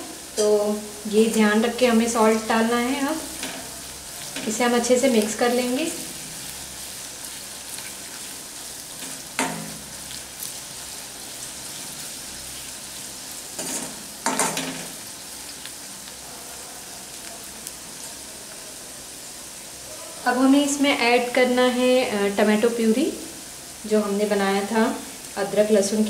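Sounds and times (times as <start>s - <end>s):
onions frying in oil: 0.0s - 26.0s
spoon scraping and knocking on pan: 9.0s - 9.9s, 13.5s - 15.0s.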